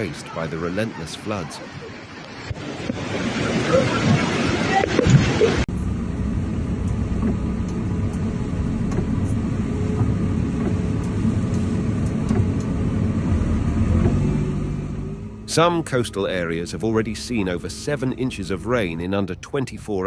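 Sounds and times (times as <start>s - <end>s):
wind and surf: 0.0s - 8.1s
vehicle engine and road noise: 0.0s - 20.0s.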